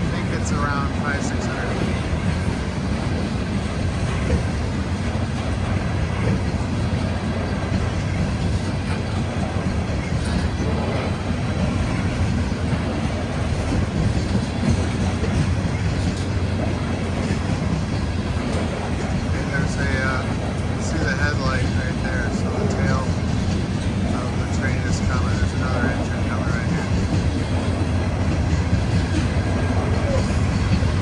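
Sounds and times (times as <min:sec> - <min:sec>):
train rumbling by: 0:00.0 - 0:31.0.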